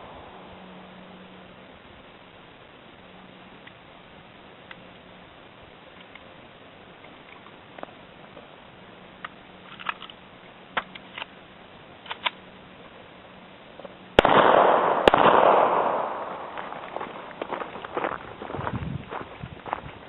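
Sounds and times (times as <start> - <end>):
pistol shots with long echo: 14.2 - 17.3.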